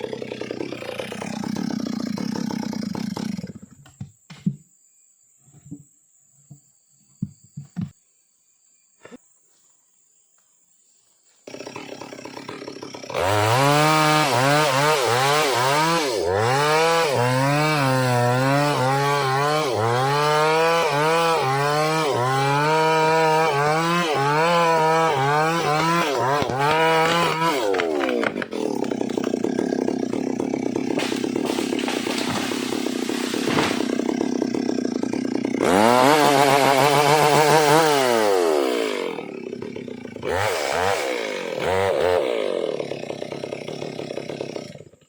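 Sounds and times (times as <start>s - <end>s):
chainsaw idling: 0.0s - 3.8s, 11.5s - 45.0s
chainsaw cutting wood: 0.0s - 4.6s, 11.4s - 45.0s.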